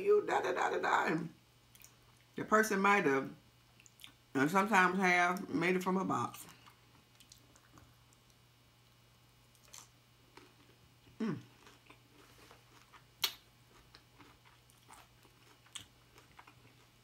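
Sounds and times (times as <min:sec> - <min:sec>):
chewing crunchy food: 0:03.8 - 0:04.2, 0:06.3 - 0:08.4, 0:09.5 - 0:17.0.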